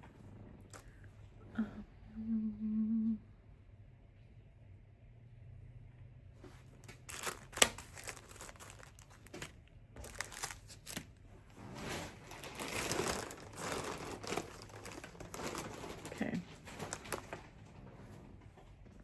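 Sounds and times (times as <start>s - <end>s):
plastic packaging crinkling: 6.8s - 11.2s, 11.8s - 17.6s.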